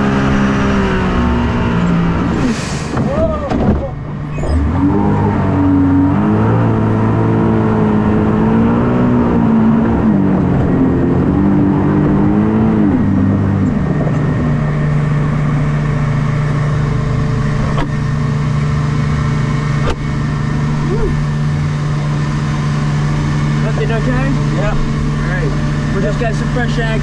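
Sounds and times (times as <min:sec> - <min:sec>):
boat engine revving: 0:00.0 - 0:27.0.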